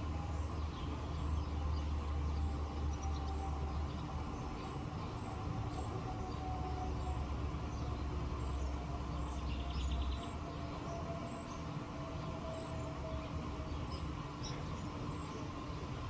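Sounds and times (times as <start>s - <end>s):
small birds chirping: 0.4s - 6.4s.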